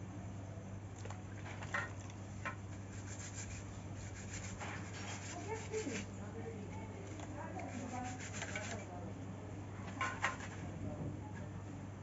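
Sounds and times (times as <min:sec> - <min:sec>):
steady low hum: 0:00.0 - 0:12.0
hand rubbing and scraping: 0:02.7 - 0:08.9.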